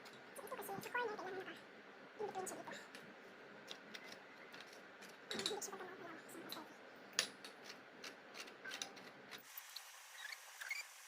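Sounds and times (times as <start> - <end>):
frame parts clicking and clinking: 6.5 - 9.4.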